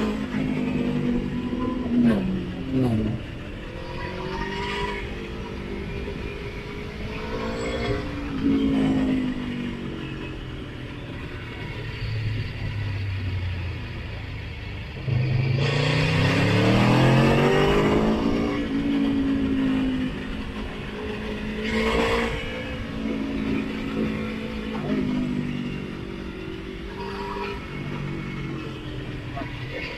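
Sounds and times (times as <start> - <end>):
motorcycle engine accelerating: 0.0 - 11.8, 14.9 - 29.9.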